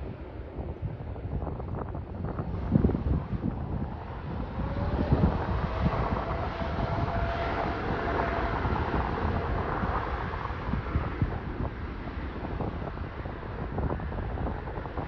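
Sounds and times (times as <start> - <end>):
jet airliner engines passing: 0.0 - 15.0
wind buffeting microphone: 0.0 - 15.0.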